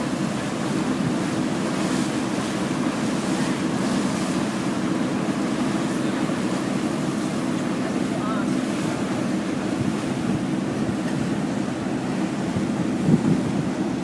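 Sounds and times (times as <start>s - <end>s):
boat engine drone: 0.0s - 14.0s
rushing wind and water: 0.0s - 14.0s
wind buffeting microphone: 8.8s - 14.0s.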